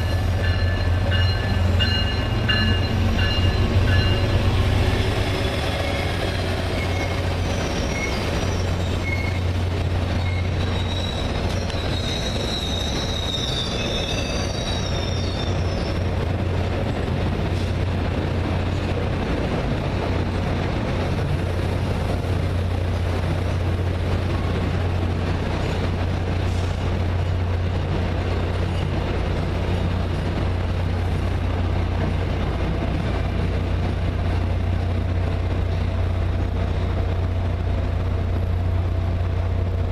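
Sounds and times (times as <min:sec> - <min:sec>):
train wheels squealing: 0:00.0 - 0:16.2
train rumbling: 0:00.0 - 0:39.9.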